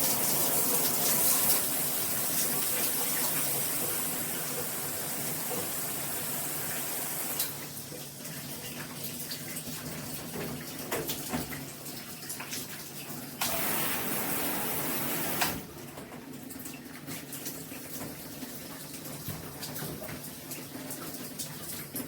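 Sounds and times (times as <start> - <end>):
shower head spraying water: 0.0 - 7.6, 13.4 - 15.6.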